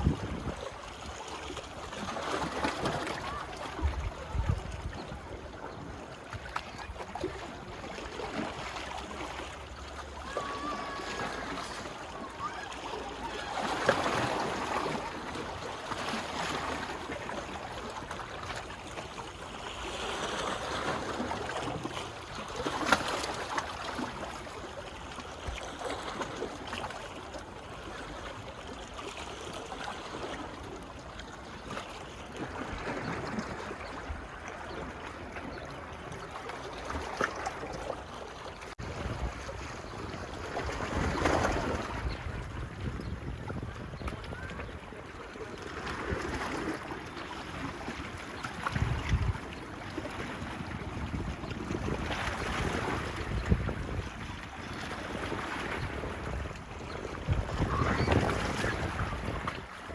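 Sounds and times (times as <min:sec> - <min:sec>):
sea waves lapping on beach: 0:00.0 - 0:59.9.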